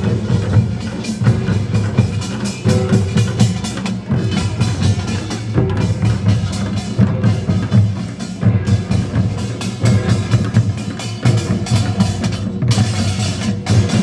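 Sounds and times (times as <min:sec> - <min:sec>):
drums beating fast rhythm: 0:00.0 - 0:14.0.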